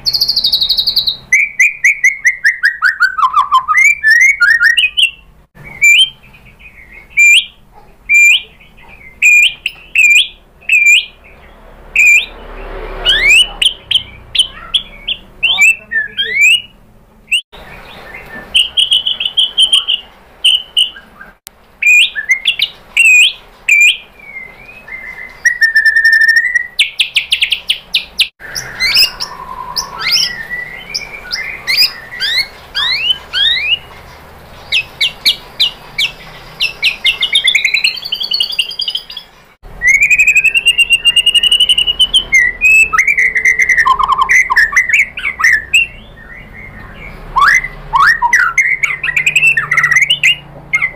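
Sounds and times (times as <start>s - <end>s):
songbird singing whistles and trills: 0.0s - 50.9s.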